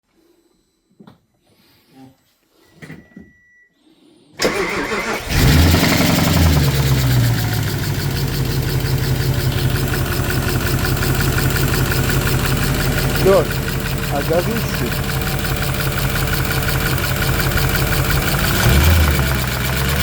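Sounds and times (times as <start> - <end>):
car engine starting and idling: 4.4 - 20.0.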